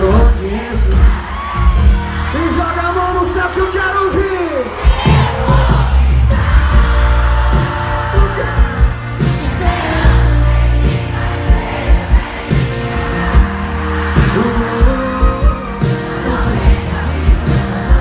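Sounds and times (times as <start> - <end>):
live band playing: 0.0 - 18.0
person singing: 5.1 - 18.0.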